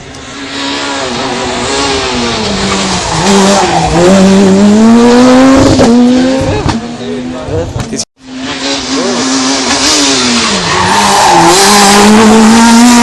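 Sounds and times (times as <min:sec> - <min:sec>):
rally car engine revving: 0:00.0 - 0:13.0
tyres skidding on road: 0:08.3 - 0:13.0.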